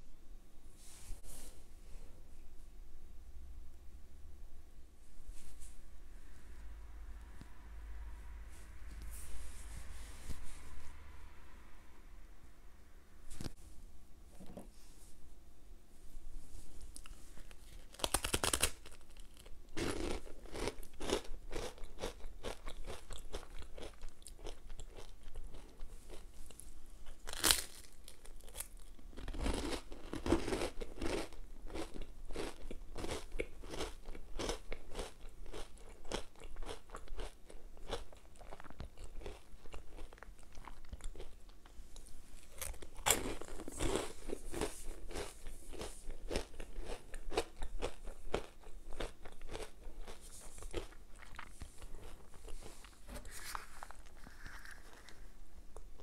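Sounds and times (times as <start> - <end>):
crisp bites and crunching: 17.8 - 25.6, 27.2 - 35.2.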